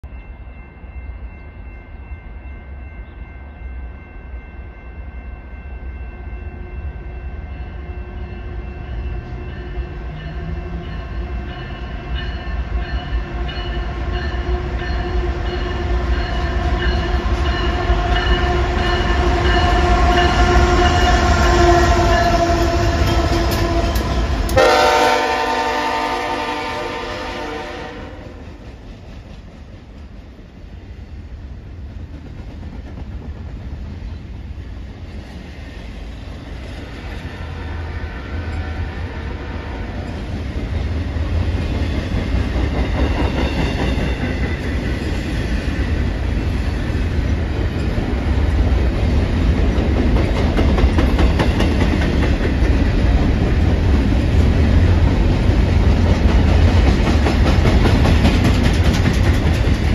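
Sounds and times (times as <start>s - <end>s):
freight train engine and wheel rumble: 0.0s - 59.9s
locomotive horn blast: 17.7s - 28.4s.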